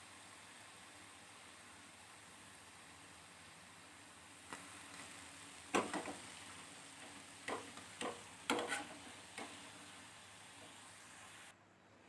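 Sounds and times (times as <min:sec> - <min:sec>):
faint steady hiss: 0:00.0 - 0:12.0
utensil clinking against cookware: 0:07.5 - 0:09.5.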